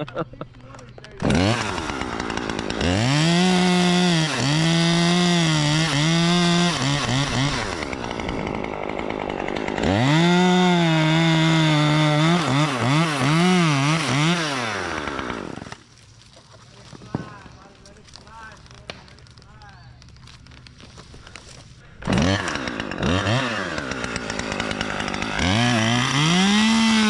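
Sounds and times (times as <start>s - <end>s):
chainsaw revving: 1.1s - 15.8s, 22.0s - 27.0s.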